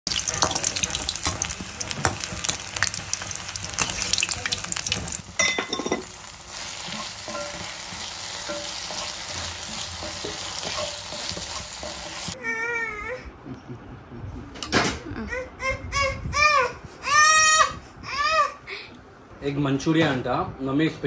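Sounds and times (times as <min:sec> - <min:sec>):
hot oil sizzling: 0:00.0 - 0:12.4
spatula stirring in pan: 0:00.1 - 0:12.4.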